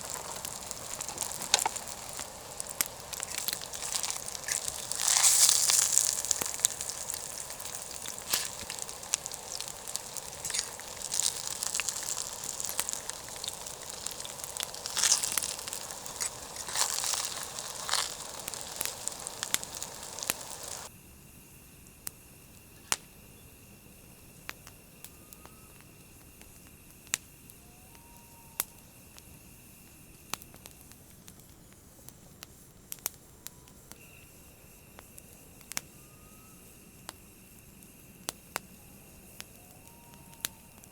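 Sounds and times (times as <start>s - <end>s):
sharp pops: 0.0s - 20.9s
campfire crackling and hissing: 0.0s - 40.9s.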